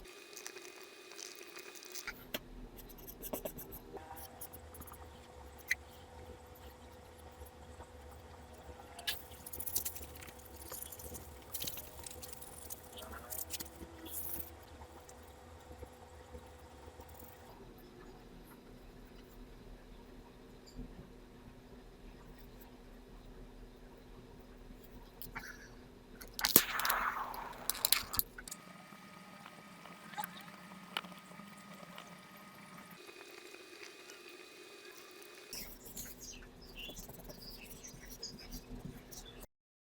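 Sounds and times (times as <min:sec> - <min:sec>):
coin scratching and clicking: 0:26.4 - 0:28.6.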